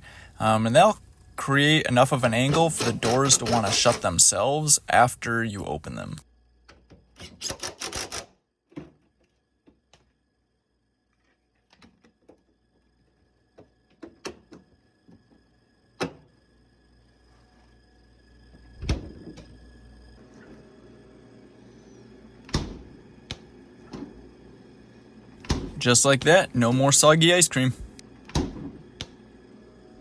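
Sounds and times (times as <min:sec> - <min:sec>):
low steady hum: 0:00.0 - 0:06.9, 0:08.8 - 0:30.0
refrigerator door clicks and knocks: 0:18.8 - 0:19.5, 0:22.5 - 0:24.2, 0:25.4 - 0:25.8, 0:28.2 - 0:29.1
refrigerator door thumps: 0:22.5 - 0:24.1, 0:25.4 - 0:25.8, 0:28.3 - 0:29.2.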